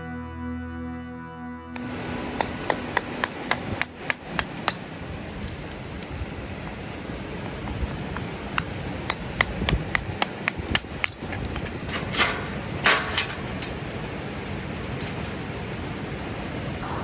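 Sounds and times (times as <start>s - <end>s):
steady background hiss: 1.8s - 17.0s
sharp hammer-like taps: 2.4s - 4.8s, 7.6s - 11.6s.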